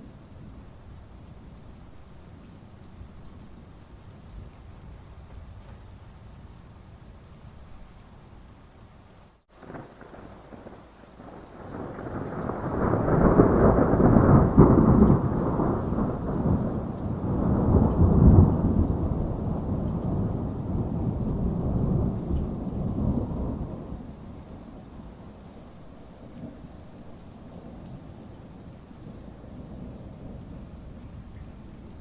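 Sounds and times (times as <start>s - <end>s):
steady rain: 0.0s - 32.0s
thunder rumbling: 9.6s - 32.0s.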